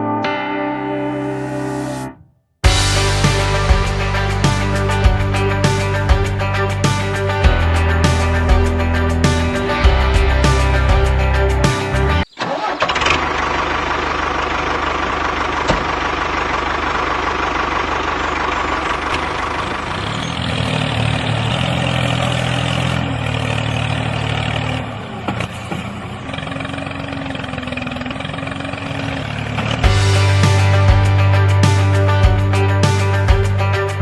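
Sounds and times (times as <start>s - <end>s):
motor running: 12.9s - 20.4s.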